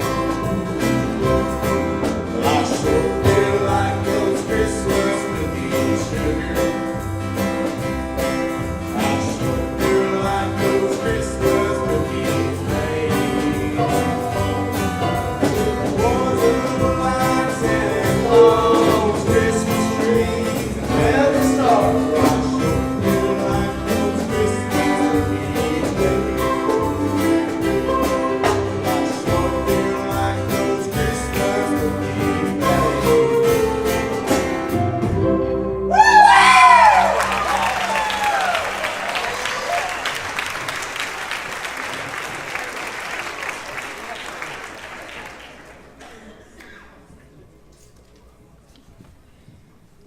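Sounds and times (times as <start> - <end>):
choir singing: 0.0 - 7.0, 8.9 - 35.6
instrumental accompaniment with beat: 0.0 - 38.7.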